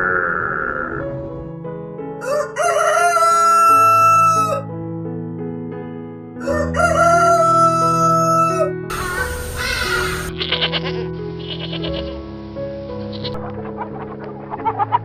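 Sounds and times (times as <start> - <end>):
background music: 0.1 - 15.0
rooster crowing: 2.2 - 4.6, 6.4 - 10.3.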